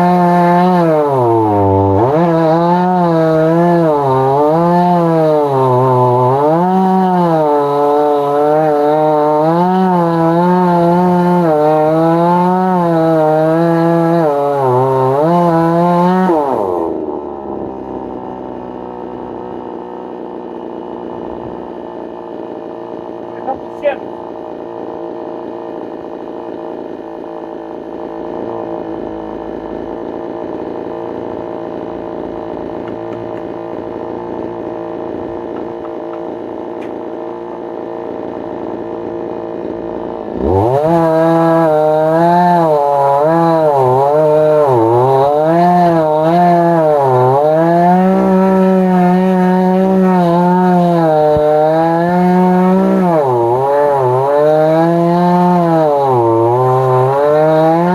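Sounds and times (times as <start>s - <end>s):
chainsaw cutting log: 0.0s - 57.9s.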